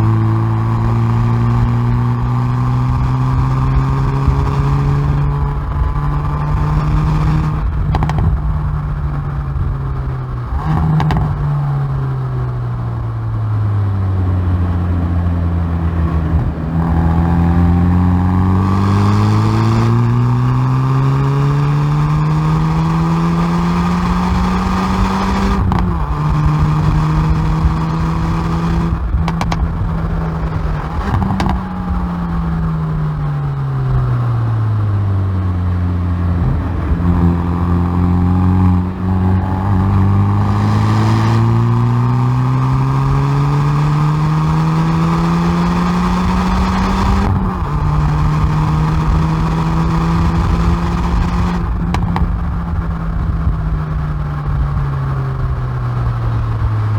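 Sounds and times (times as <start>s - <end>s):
car engine revving through gears: 0.0s - 56.9s.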